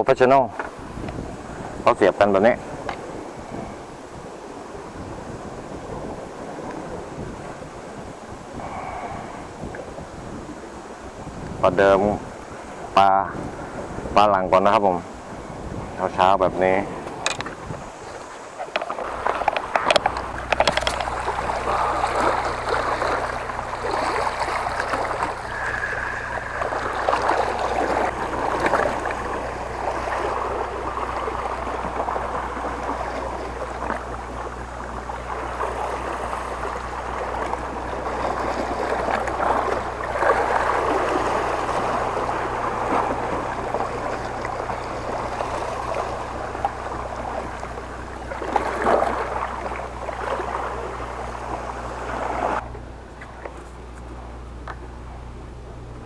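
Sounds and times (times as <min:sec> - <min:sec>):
water sloshing against rocks: 0:16.6 - 0:54.3
low hum: 0:16.8 - 0:56.0.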